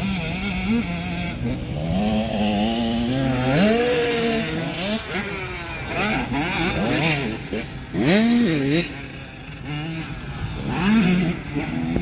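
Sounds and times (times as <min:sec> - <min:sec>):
motocross bikes revving: 0:00.0 - 0:12.0.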